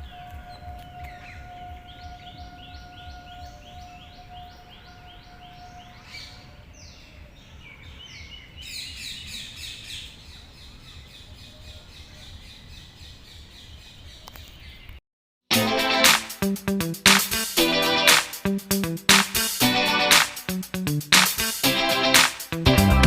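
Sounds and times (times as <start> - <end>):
birds chirping: 0.0 - 15.0
loud music: 15.5 - 23.0.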